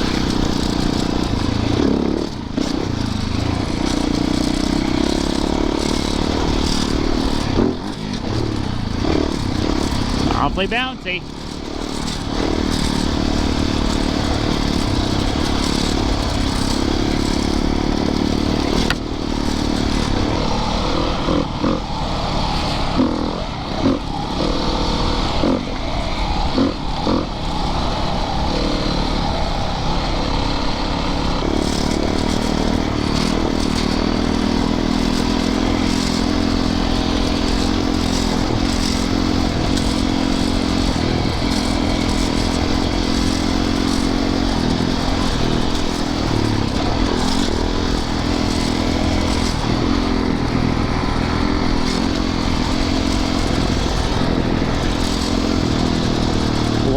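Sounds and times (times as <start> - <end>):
dirt bike engine running: 0.0 - 56.9
bike clattering over rough ground: 31.5 - 56.9.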